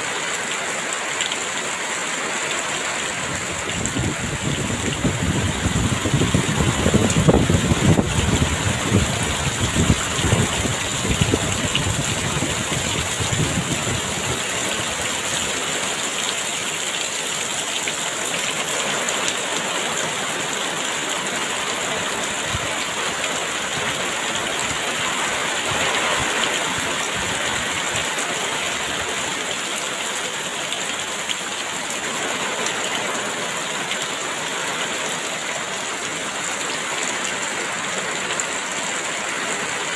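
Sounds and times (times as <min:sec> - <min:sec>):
heavy rain falling: 0:00.0 - 0:39.9
wind gusts rumbling low: 0:03.2 - 0:15.3.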